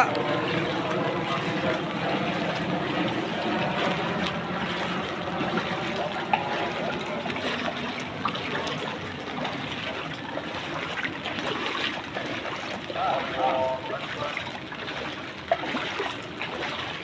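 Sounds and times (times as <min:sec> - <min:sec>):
water trickling and splashing: 0:00.0 - 0:17.0.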